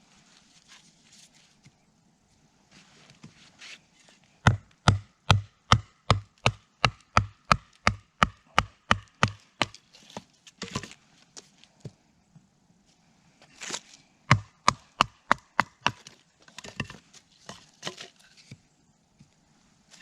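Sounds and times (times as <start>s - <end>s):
wood being chopped: 4.5s - 9.8s, 14.3s - 17.0s.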